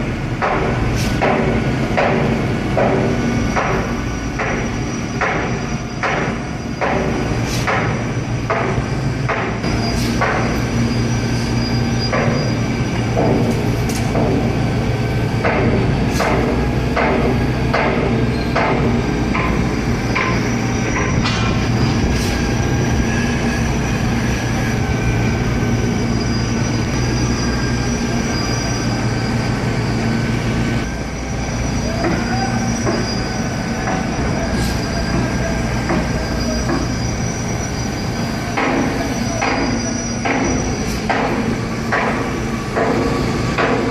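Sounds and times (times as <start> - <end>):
diesel engine drone: 0.0 - 43.9
pump clunk and hiss: 0.4 - 10.8, 12.0 - 14.6, 15.4 - 22.6, 33.8 - 37.0, 38.6 - 43.9.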